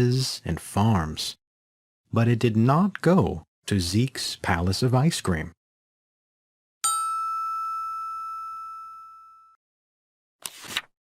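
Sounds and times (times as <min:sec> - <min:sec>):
chime ding: 0:06.8 - 0:09.6.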